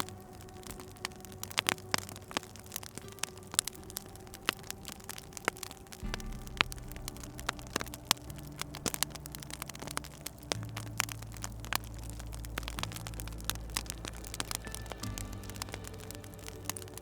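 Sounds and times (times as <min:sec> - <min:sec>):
soft low music pad: 0:00.0 - 0:17.0
wood fire crackling and popping: 0:00.0 - 0:17.0.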